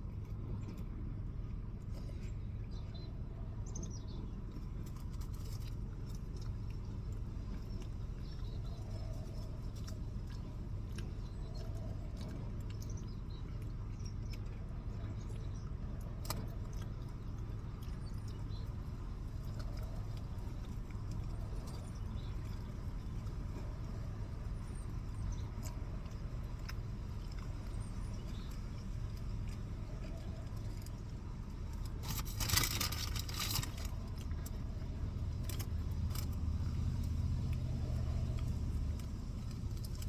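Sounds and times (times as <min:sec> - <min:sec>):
small clicks: 0:31.7 - 0:34.6.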